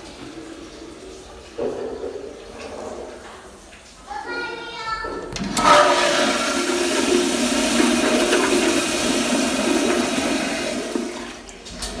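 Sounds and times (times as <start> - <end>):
toilet flushing: 0.0 - 4.1, 4.8 - 12.0.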